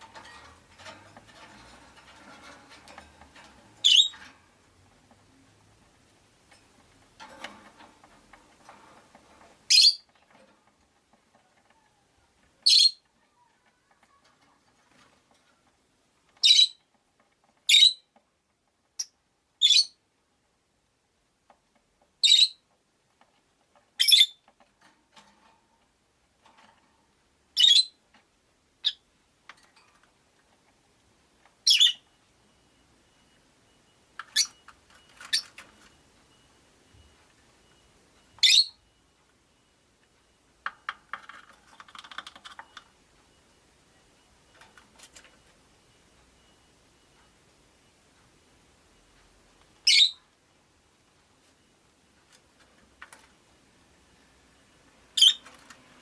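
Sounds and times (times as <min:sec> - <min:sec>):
lovebirds chirping: 0:03.8 - 0:04.2, 0:12.6 - 0:14.2, 0:31.6 - 0:32.1, 0:38.4 - 0:38.8.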